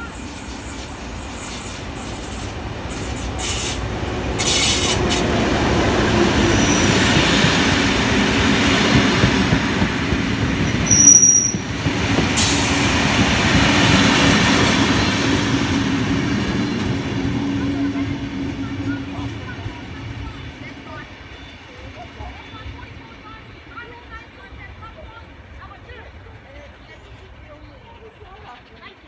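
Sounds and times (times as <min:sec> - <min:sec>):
diesel locomotive engine: 0:00.0 - 0:29.0
brief high squeals: 0:10.9 - 0:11.6.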